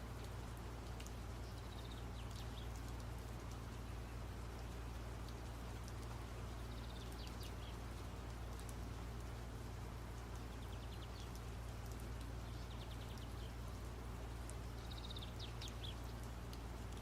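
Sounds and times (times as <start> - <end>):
birds chirping: 1.4 - 4.8, 6.0 - 8.0, 10.2 - 17.0.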